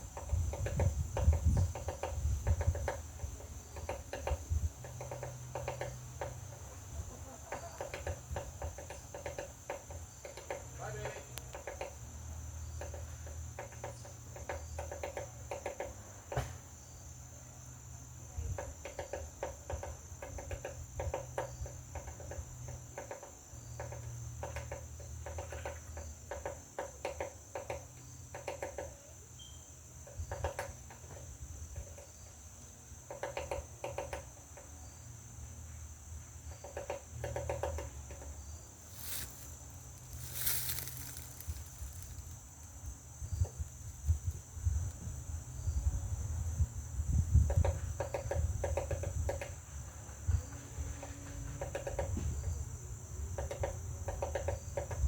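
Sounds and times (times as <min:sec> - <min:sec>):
woodpecker tapping on wood: 0:00.0 - 0:16.6, 0:18.3 - 0:34.9, 0:36.4 - 0:45.2, 0:47.1 - 0:52.6, 0:53.2 - 0:55.0
high-pitched insect buzz: 0:27.3 - 0:49.5.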